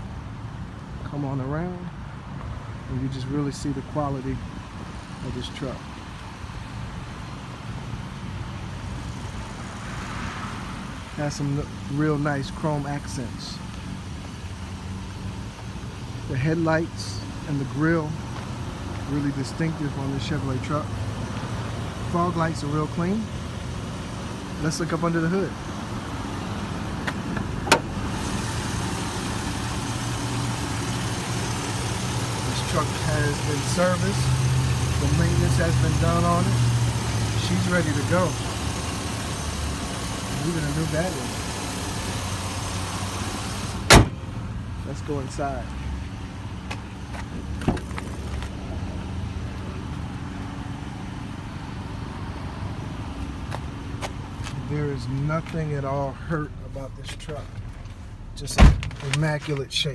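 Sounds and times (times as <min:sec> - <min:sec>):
pickup engine idling: 0:10.7 - 0:58.4.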